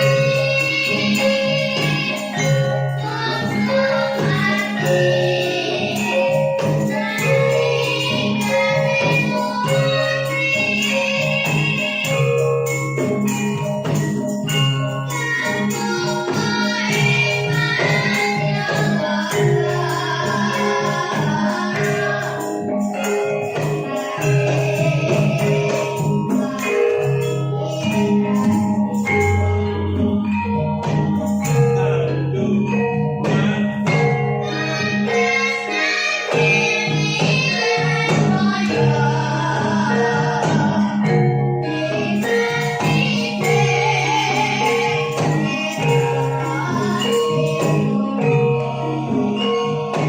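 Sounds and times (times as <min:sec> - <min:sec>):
metallic percussion music: 0:00.0 - 0:50.0
person singing: 0:15.0 - 0:30.8, 0:31.4 - 0:50.0.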